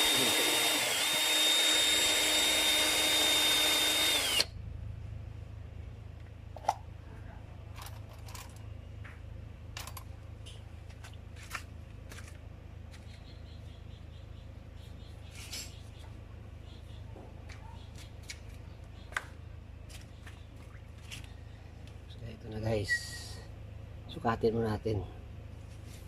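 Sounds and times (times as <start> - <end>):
power tool whining: 0.0 - 4.5
faint low hum: 0.0 - 26.0.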